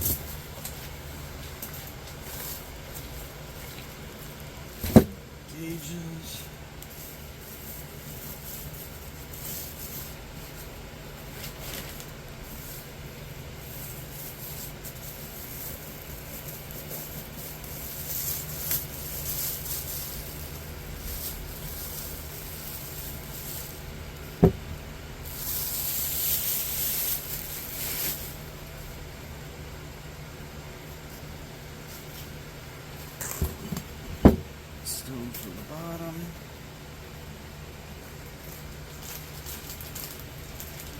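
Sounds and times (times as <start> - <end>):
steady low hum: 0.0 - 40.9
packaging rustling and crinkling: 6.8 - 13.0, 13.6 - 23.8, 25.3 - 28.4, 38.4 - 40.9.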